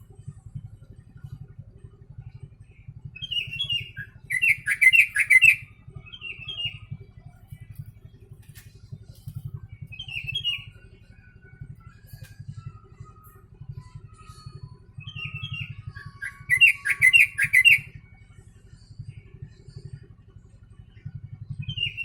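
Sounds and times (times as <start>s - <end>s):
low pulsing hum: 0.0s - 22.0s
bulbul singing bubbly phrases: 14.8s - 18.0s.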